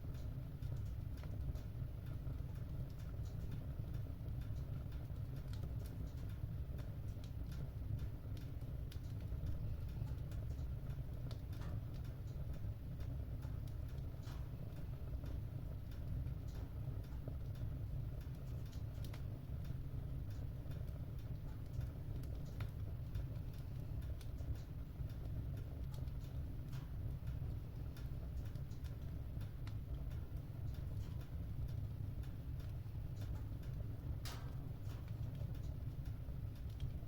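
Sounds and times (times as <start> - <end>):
low rumble of fire: 0.0 - 37.0
wood fire crackling and popping: 0.0 - 37.0.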